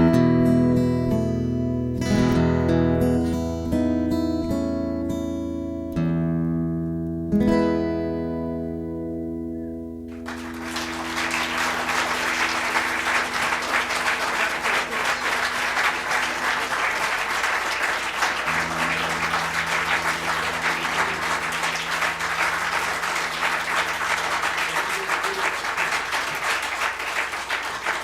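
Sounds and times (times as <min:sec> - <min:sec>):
audience applauding: 0:10.1 - 0:28.0.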